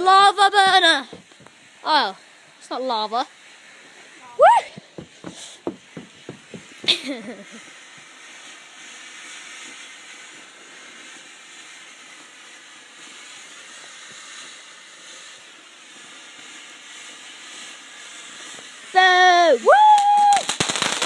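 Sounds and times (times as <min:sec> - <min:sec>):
firework hissing: 0:00.0 - 0:21.0.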